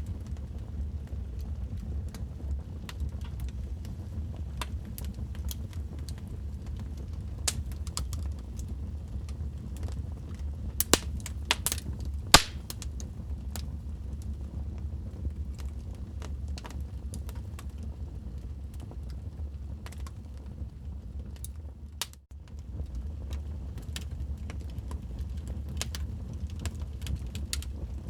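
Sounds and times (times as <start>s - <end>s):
wood fire crackling and popping: 0.1s - 20.5s, 21.3s - 28.0s.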